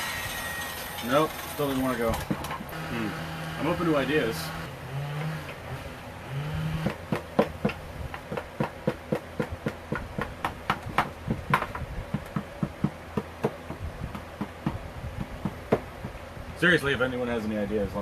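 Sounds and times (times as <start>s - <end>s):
hammer-like knocks: 6.3s - 16.2s.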